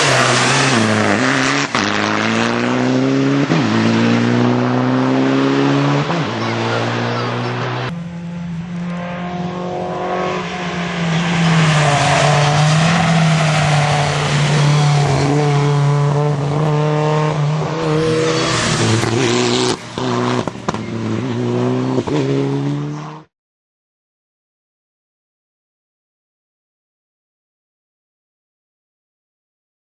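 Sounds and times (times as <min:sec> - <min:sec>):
rally car engine revving: 0:00.0 - 0:23.3.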